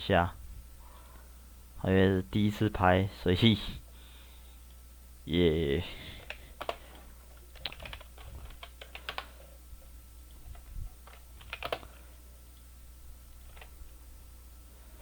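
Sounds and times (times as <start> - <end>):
steady low hum: 0.0 - 15.0
computer keyboard typing: 6.2 - 9.5, 10.5 - 12.0, 13.4 - 13.8.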